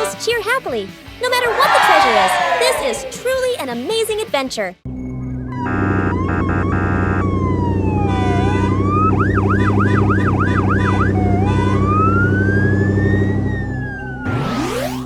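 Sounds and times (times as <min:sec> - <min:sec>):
police siren wailing and yelping: 0:01.5 - 0:03.2, 0:05.6 - 0:15.0.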